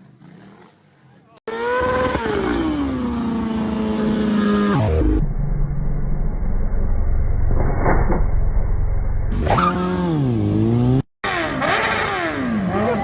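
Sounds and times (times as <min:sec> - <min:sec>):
engine revving: 0:01.5 - 0:05.4, 0:07.5 - 0:13.0
engine drone: 0:01.5 - 0:13.0.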